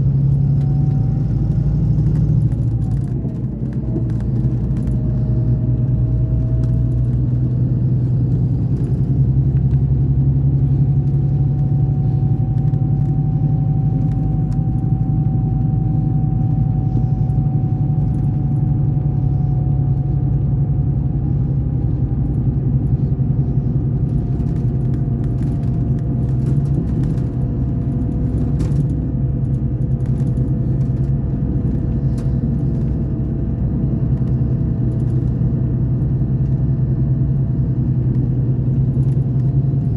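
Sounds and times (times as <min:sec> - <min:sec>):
diesel engine droning: 0:00.0 - 0:39.9
light clicks and rattles: 0:21.8 - 0:36.6.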